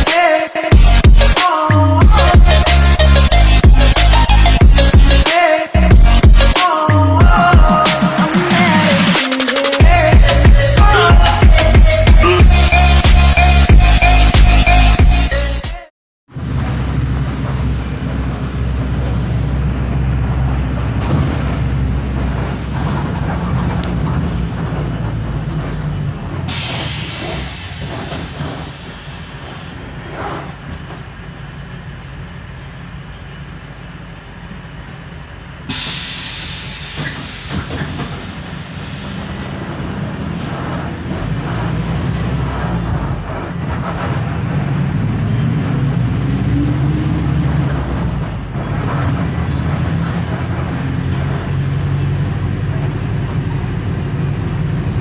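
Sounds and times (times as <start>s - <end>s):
bus diesel engine running: 0.0s - 15.6s, 16.3s - 55.0s
bus body rattling: 16.4s - 55.0s
air hissing: 26.5s - 30.6s, 35.6s - 39.8s.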